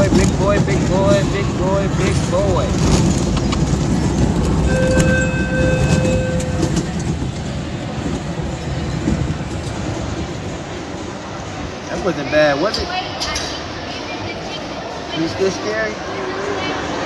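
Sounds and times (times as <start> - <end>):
ride train rumbling on track: 0.0 - 17.0
steady high tone: 4.6 - 7.2.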